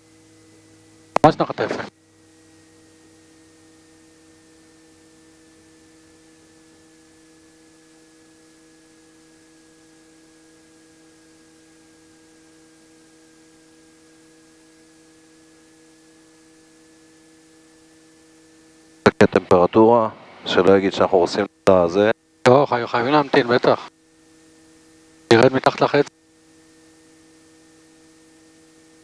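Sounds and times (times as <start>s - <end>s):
faint electrical hum: 0.0s - 29.0s
steady electronic tones: 19.1s - 23.9s.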